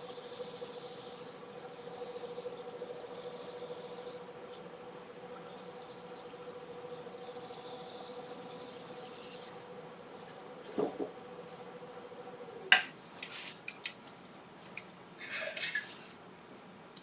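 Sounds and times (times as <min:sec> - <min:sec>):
wood lathe humming: 0:00.0 - 0:12.6.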